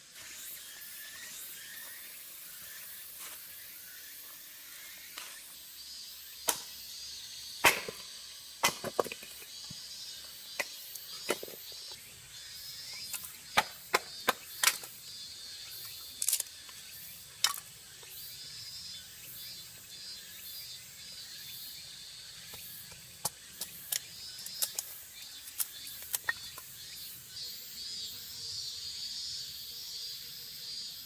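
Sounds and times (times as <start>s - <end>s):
sharp wooden knocks: 8.6s - 9.3s.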